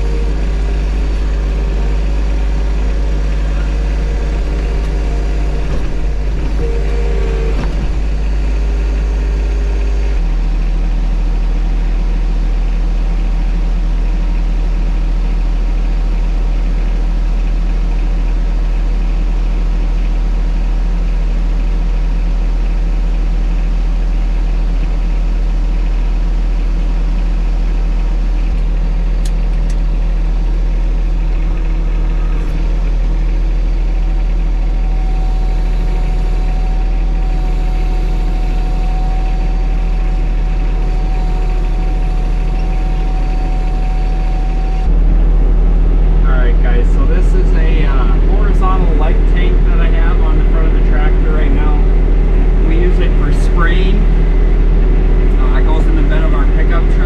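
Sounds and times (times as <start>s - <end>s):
brief higher tone: 0.0s - 10.1s
tractor diesel engine running: 0.0s - 57.0s.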